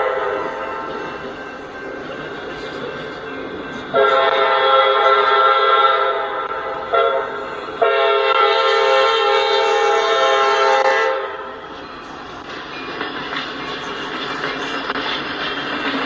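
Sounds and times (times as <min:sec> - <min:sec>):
low rumble of passing train: 0:00.0 - 0:16.0
locomotive air horn blasts: 0:04.0 - 0:11.5.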